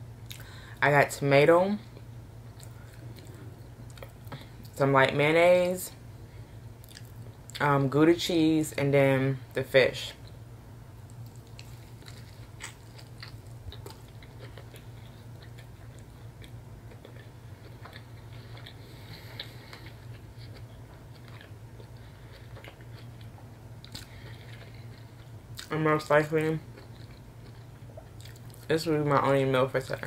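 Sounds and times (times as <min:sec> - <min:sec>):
steady low hum: 0:00.0 - 0:30.0
person chewing: 0:02.5 - 0:04.7, 0:06.8 - 0:07.6, 0:11.0 - 0:25.7, 0:26.5 - 0:28.7.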